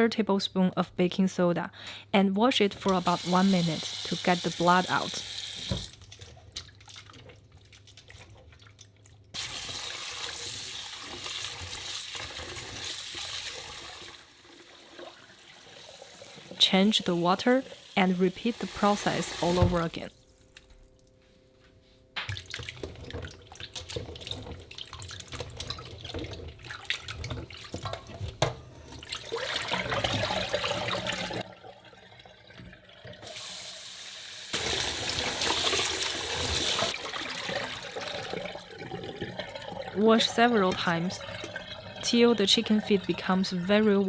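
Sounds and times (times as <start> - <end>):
tap running: 2.8 - 6.0, 15.8 - 20.0
water sloshing and splashing: 5.7 - 9.9, 22.2 - 33.4, 34.6 - 44.0.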